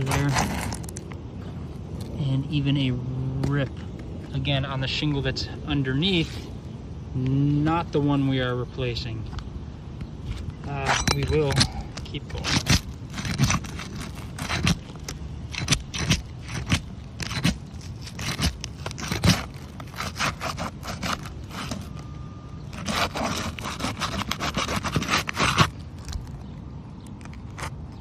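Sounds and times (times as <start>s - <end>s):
metal tool scraping under shingles: 0.0s - 1.0s, 10.2s - 26.5s.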